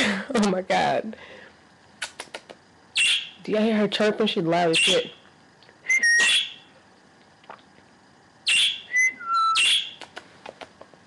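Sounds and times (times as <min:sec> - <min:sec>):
parakeet chirping and whistling: 0:02.9 - 0:03.4, 0:04.7 - 0:05.2, 0:05.9 - 0:06.7, 0:08.4 - 0:10.0.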